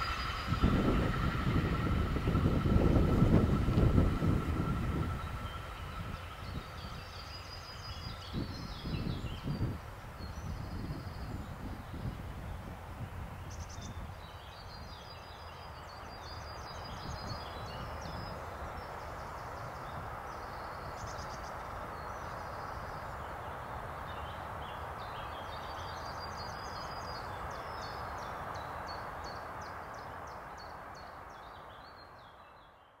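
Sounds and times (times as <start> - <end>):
low rumble: 0.0 - 12.4
outdoor background noise: 0.0 - 33.0
songbirds chirping and trilling: 0.0 - 33.0.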